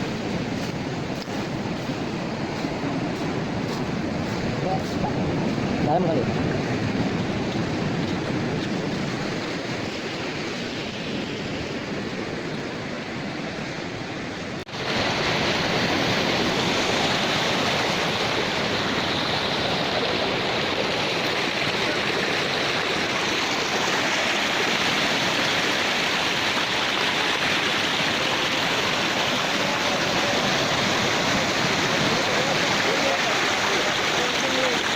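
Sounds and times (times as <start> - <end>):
water rushing: 0.0 - 34.9.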